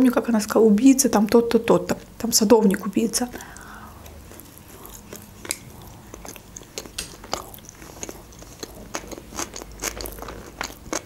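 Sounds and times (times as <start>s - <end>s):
wet mouth chewing sounds: 2.7s - 11.0s.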